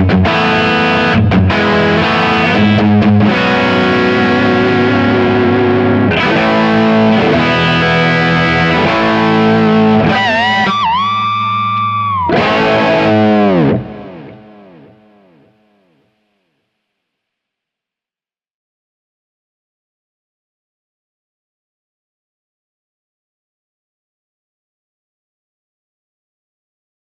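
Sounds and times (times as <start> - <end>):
distorted electric guitar: 0.0 - 16.0.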